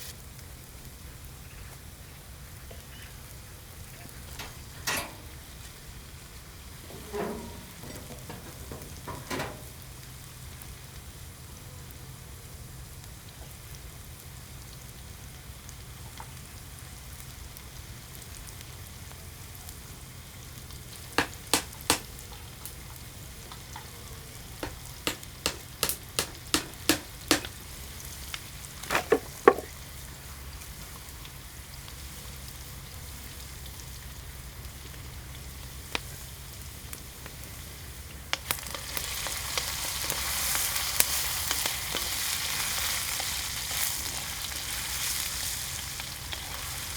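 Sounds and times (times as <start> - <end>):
food sizzling in hot oil: 2.1 - 46.9
cooking utensils knocking: 4.3 - 5.4, 6.9 - 9.8, 21.2 - 22.1, 24.6 - 27.6, 28.8 - 29.7.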